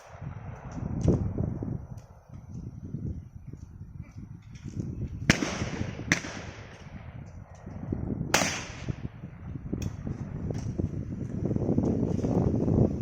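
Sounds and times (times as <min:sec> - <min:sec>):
wind rumble on microphone: 0:00.0 - 0:13.0
shotgun shots with echo: 0:05.3 - 0:07.0, 0:08.3 - 0:09.1.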